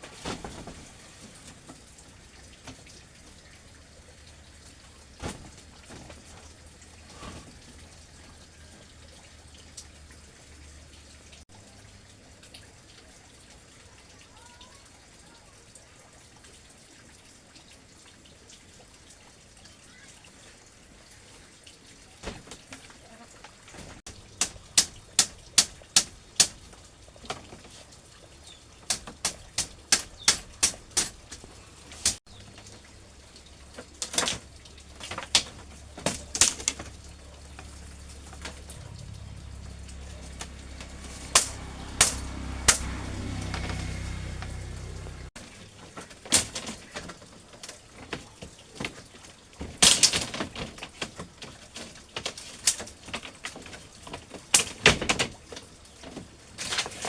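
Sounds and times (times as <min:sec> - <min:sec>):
low rumble: 0:37.6 - 0:45.3.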